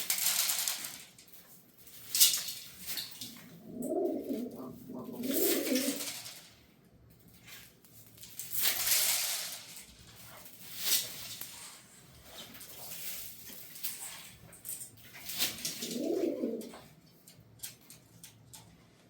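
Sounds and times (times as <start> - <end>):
pigeon cooing: 3.4 - 6.2, 15.6 - 16.9.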